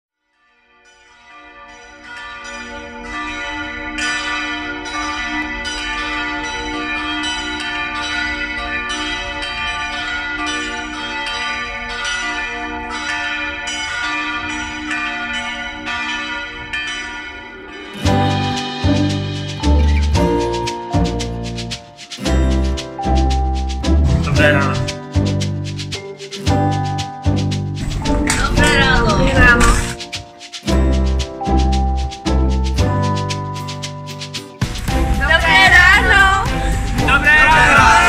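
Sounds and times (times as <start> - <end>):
church bells pealing: 0.5 - 34.0
loud music with heavy drums: 18.0 - 21.3, 26.8 - 30.8, 34.2 - 38.0.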